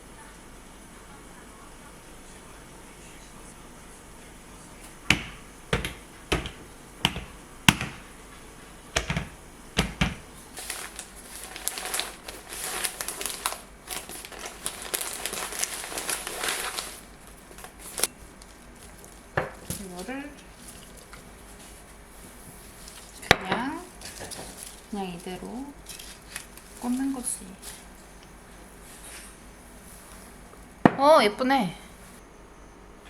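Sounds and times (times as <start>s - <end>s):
hard objects clicking and knocking: 5.1s - 8.1s, 9.0s - 22.0s, 22.8s - 28.3s
crinkling rustle: 10.4s - 31.1s, 31.8s - 32.2s.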